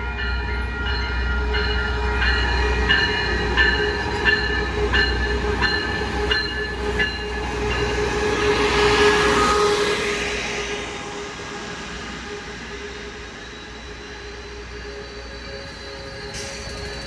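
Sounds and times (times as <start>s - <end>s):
railroad crossing bell dinging: 0.0s - 9.6s
diesel locomotive engine hum: 0.0s - 17.0s
hiss of wheels and brakes: 7.9s - 17.0s
faint brake squeal: 12.2s - 17.0s.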